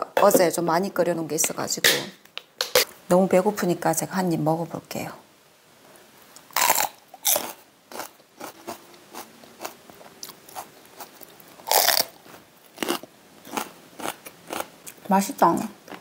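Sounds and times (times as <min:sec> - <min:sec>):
crunching and chewing chili pepper: 0:06.4 - 0:15.1.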